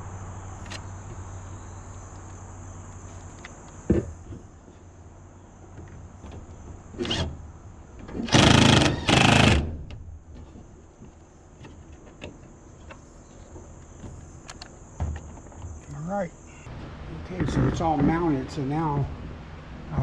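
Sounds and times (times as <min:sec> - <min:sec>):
power drill motor: 0:08.3 - 0:09.6.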